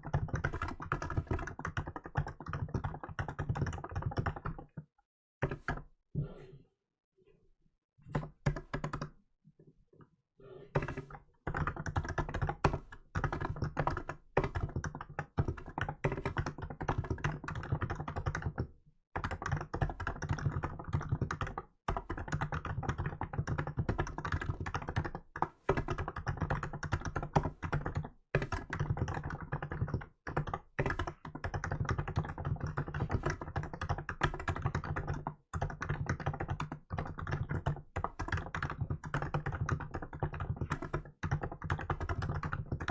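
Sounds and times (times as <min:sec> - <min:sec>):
fast keyboard typing: 0:00.0 - 0:05.8, 0:08.1 - 0:09.2, 0:10.8 - 0:42.9.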